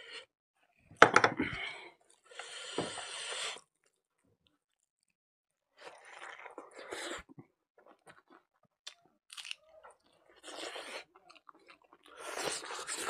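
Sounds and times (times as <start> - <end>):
person chewing with wet smacks: 7.8 - 13.0.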